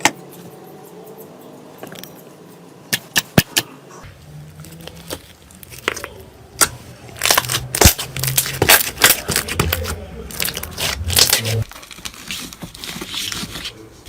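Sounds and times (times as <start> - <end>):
crunchy crackling: 4.0 - 13.5.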